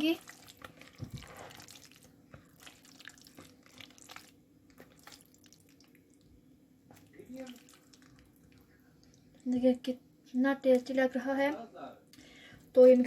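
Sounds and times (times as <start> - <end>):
spoon mixing in a bowl: 0.0 - 6.0.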